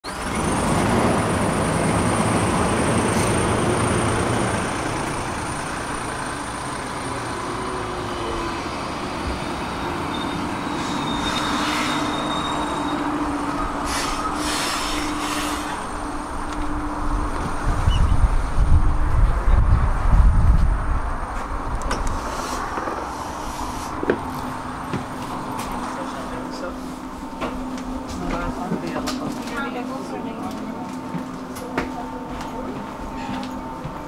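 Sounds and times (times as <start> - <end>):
train wheels rumbling on rail: 0.0 - 34.0
wheel squeals: 9.8 - 15.8, 17.8 - 18.2.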